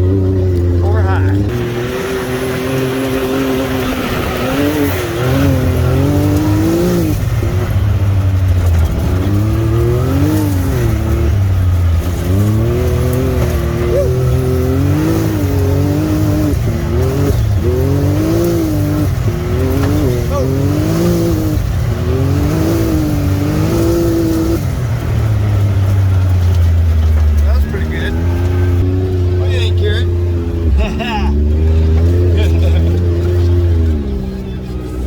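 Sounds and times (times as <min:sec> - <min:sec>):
engine revving hard: 0:00.0 - 0:26.2.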